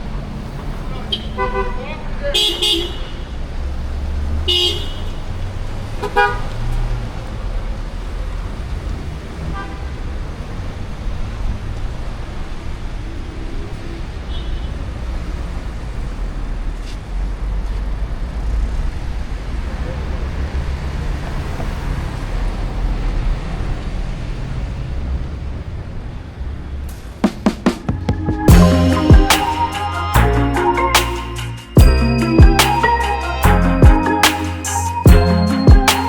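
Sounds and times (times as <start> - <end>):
vehicle engines passing: 0.0 - 2.3, 3.2 - 36.0
heavy low traffic rumble: 22.5 - 36.0.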